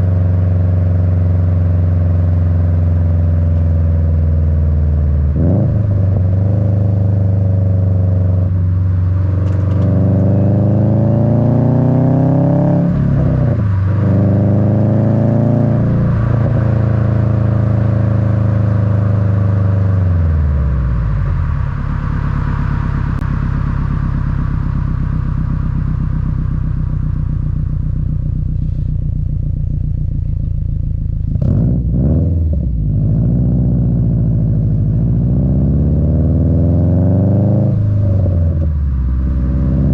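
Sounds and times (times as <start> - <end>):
car exhaust rumbling: 0.0 - 39.9
road noise: 0.0 - 39.9.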